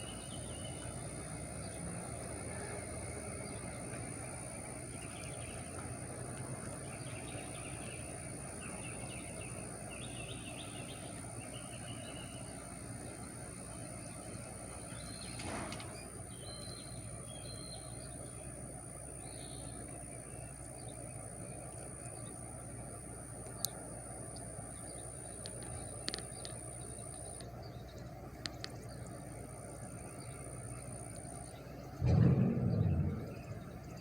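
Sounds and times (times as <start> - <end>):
small birds chirping: 6.5 - 34.0
high-pitched whine: 24.9 - 34.0
low rumble: 32.0 - 34.0
rush of noise: 32.0 - 34.0.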